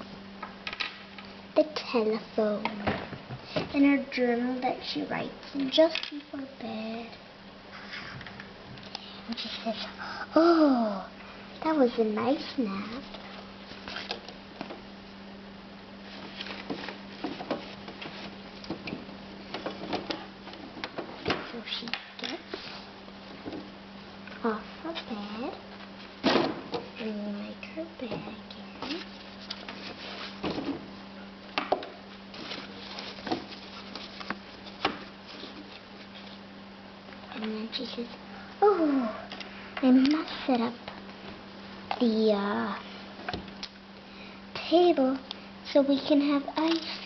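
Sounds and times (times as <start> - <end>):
low steady hum: 0.0 - 47.0
soft rustling: 28.8 - 31.1, 32.1 - 36.5.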